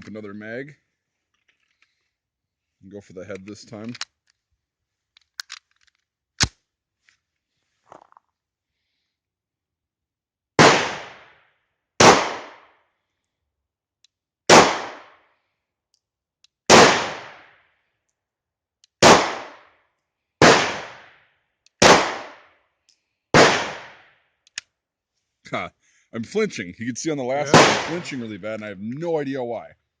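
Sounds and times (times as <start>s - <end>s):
pistol shots: 10.6s - 11.3s, 12.0s - 12.7s, 14.5s - 15.2s, 16.7s - 17.5s, 19.0s - 19.6s, 20.4s - 21.1s, 21.8s - 22.4s, 23.4s - 24.0s, 27.5s - 28.3s.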